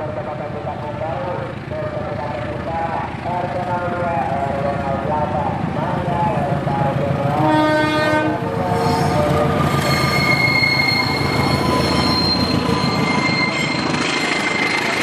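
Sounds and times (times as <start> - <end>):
train wheels rushing on rails: 0.0 - 15.0
train horn: 7.3 - 9.2
wheel flanges squealing: 8.6 - 15.0.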